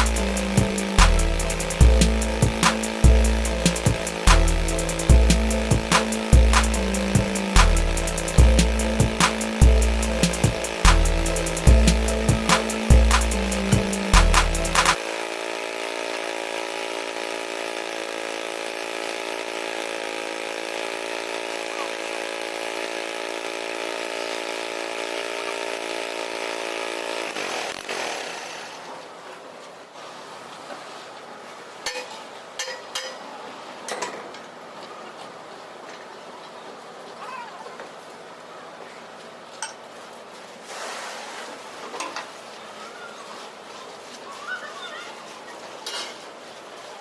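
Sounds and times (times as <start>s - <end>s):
power tool motor running: 0.0s - 28.9s.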